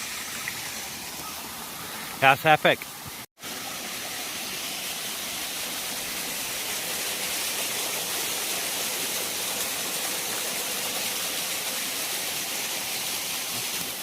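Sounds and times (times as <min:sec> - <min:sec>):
waterfall rushing: 0:03.4 - 0:14.0.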